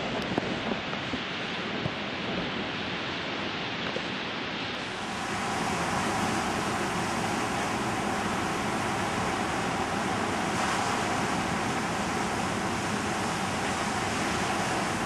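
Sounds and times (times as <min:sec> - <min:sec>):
storm wind: 0:00.0 - 0:15.0
ocean surf pounding: 0:04.7 - 0:15.0.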